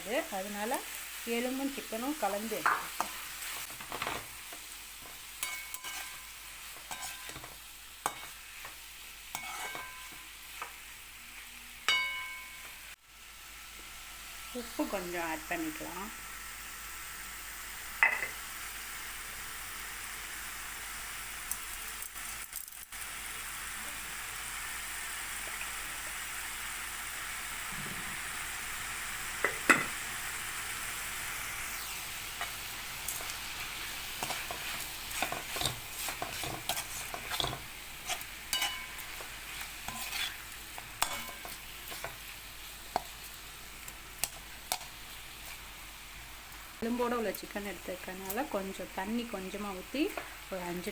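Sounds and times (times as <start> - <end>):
chicken sizzling in a pan: 0.0 - 50.9
spoon scraping a pan: 2.4 - 10.8, 32.3 - 43.2, 44.2 - 45.7.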